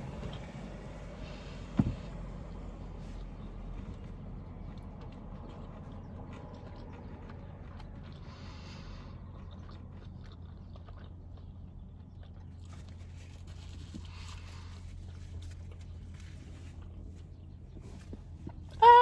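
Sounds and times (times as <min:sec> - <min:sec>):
chewing and biting burger: 0:03.2 - 0:18.8.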